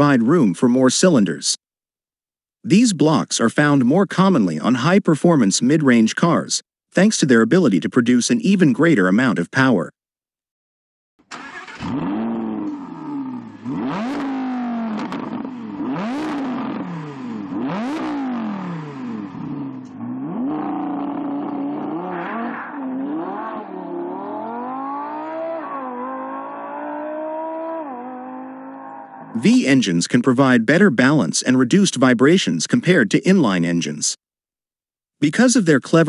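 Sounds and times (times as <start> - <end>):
sports car engine revving: 11.4 - 29.4.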